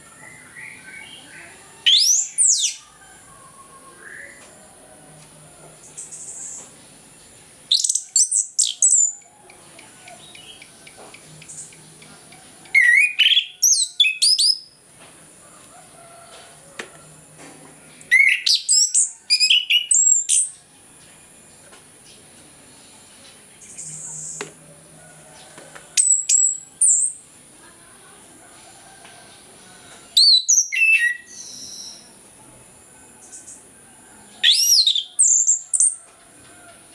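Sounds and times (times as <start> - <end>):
thrush singing whistled notes: 18.1 - 20.5.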